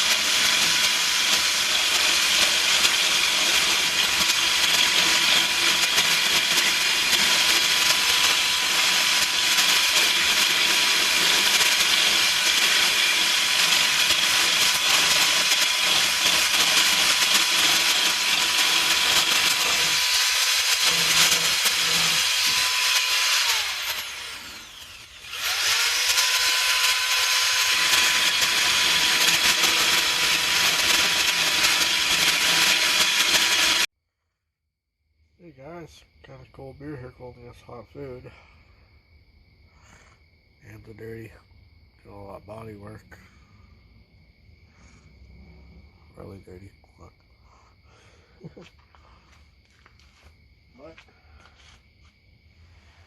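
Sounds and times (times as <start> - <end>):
power sander whining: 0.0 - 33.9.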